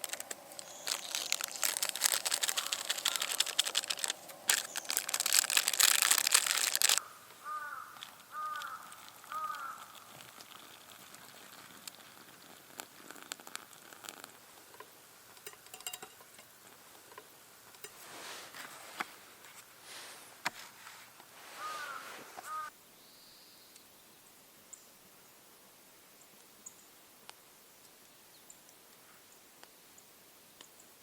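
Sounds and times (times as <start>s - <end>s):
soft rustling: 0.0s - 7.0s, 7.6s - 22.6s
crow cawing: 2.5s - 3.4s, 7.0s - 10.1s, 21.6s - 22.7s.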